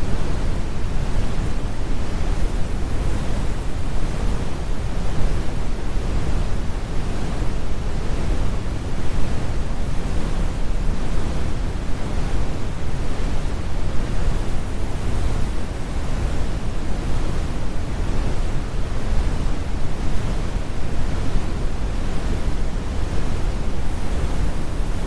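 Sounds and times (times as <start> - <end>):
deep brown noise: 0.0 - 25.0.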